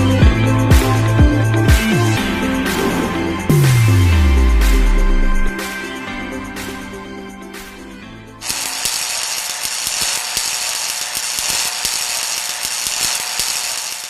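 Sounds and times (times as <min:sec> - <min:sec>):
background music: 0:00.0 - 0:09.0
laser welder crackling hiss: 0:08.4 - 0:14.0.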